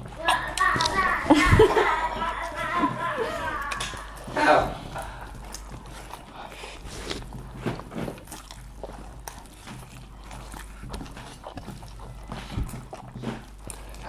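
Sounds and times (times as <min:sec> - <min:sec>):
utensils clicking and tapping: 0:00.0 - 0:06.3
people chewing: 0:00.0 - 0:14.0.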